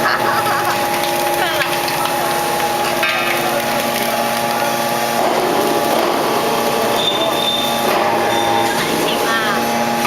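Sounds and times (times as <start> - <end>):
baler machine drone: 0.0 - 10.0
rough noisy machine sound: 0.0 - 10.0.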